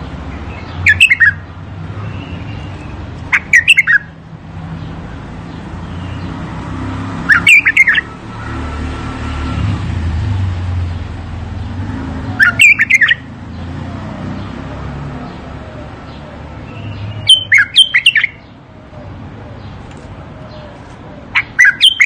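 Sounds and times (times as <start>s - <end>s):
bird fluting song: 0.5s - 4.2s, 7.2s - 8.5s, 12.3s - 13.3s, 15.2s - 22.0s.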